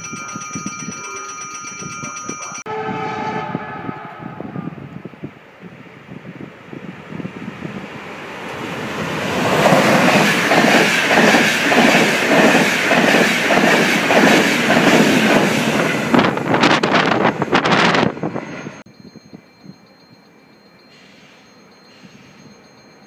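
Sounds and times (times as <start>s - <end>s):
passenger train rushing past: 2.7s - 18.8s.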